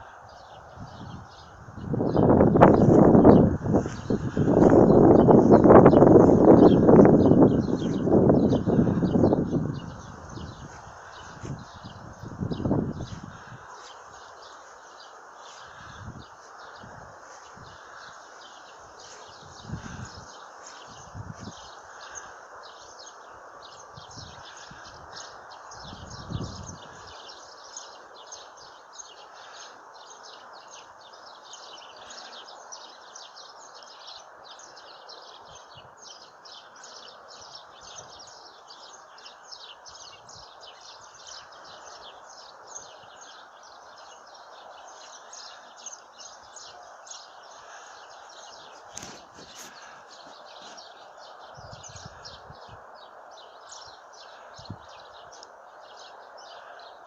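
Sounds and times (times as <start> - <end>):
small birds chirping: 0.0 - 57.0
steady outdoor hiss: 0.0 - 57.0.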